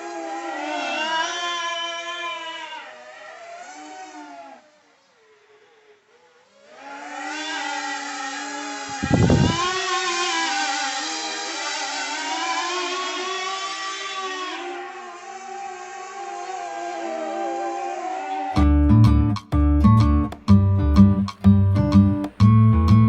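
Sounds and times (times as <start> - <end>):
electric motor and propeller whining: 6.8 - 18.5
short low thump: 9.0 - 9.8.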